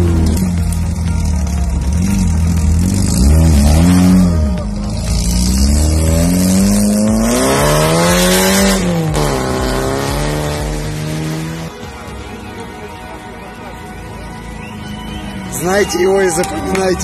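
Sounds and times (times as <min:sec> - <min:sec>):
racing car engine revving: 0:01.8 - 0:11.7.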